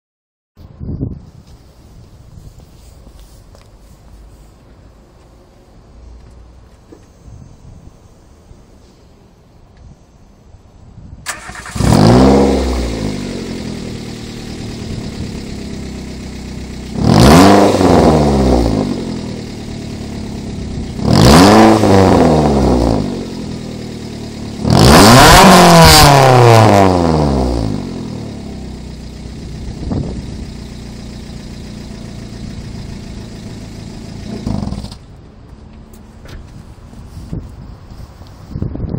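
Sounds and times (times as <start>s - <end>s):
loud car engine revving: 11.3s - 35.0s.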